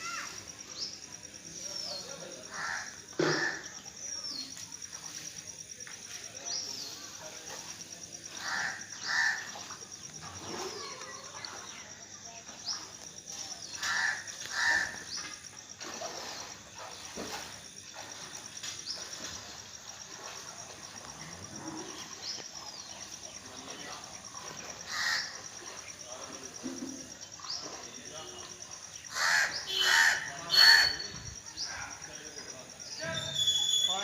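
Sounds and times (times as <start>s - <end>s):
pulsing insect trill: 0.0s - 34.0s
harsh bird calls: 8.3s - 9.7s, 29.0s - 31.8s, 32.8s - 34.0s
birds calling: 8.3s - 13.0s, 13.6s - 15.6s, 27.2s - 31.9s
high downward-sweeping bird calls: 33.0s - 34.0s.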